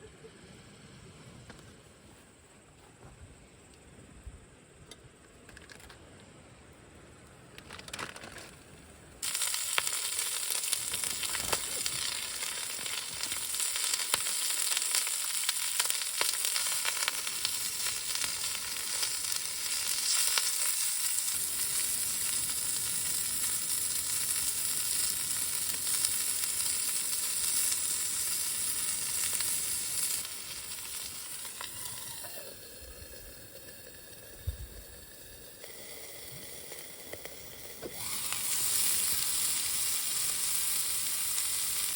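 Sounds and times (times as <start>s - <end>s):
food sizzling in hot oil: 9.2s - 41.9s.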